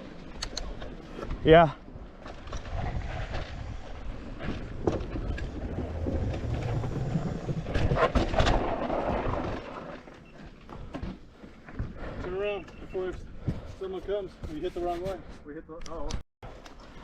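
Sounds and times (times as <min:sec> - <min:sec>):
tyres on dirt: 0:00.0 - 0:15.1
wind rumble on microphone: 0:00.9 - 0:09.8.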